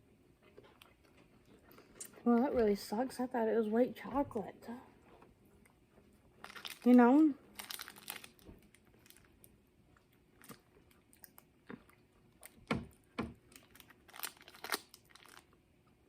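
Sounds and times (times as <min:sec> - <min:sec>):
person chewing candy bar: 0:00.3 - 0:02.3, 0:05.6 - 0:16.0.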